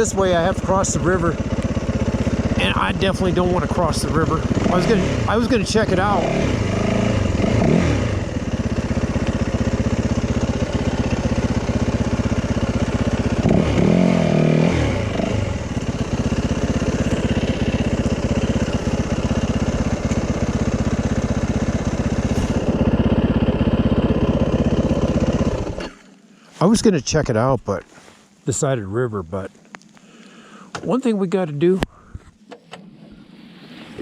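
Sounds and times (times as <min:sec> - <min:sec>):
dirt bike engine running: 0:00.0 - 0:26.1.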